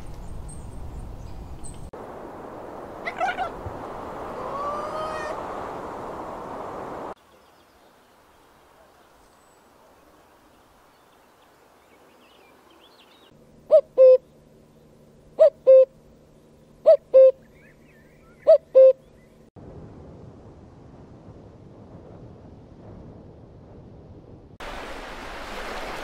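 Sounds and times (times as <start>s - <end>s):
bird calling: 3.0s - 5.4s, 12.0s - 19.4s
faint steady hum: 8.0s - 19.5s.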